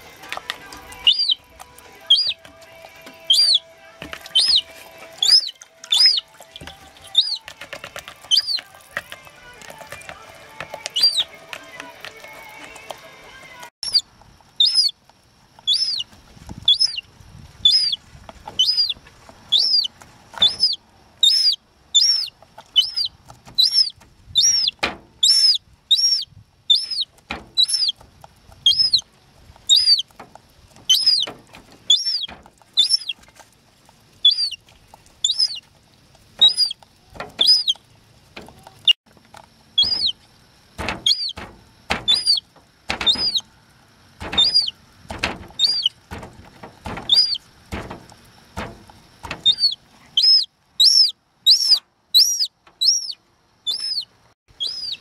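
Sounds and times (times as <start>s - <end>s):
gull chick peeping: 0.0s - 15.0s, 15.6s - 28.0s, 28.6s - 33.3s, 34.2s - 35.7s, 36.4s - 37.8s, 39.7s - 40.2s, 40.8s - 43.5s, 44.2s - 55.0s.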